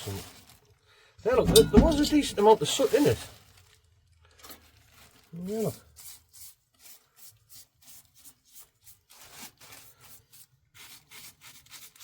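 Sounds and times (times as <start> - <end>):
scraping soot from pipe: 1.3 - 2.6.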